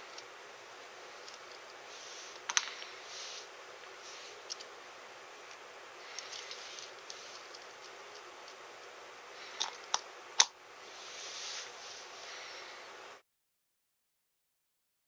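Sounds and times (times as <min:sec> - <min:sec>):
rustling: 0:05.4 - 0:10.0
plastic parts clicking together: 0:09.6 - 0:10.5.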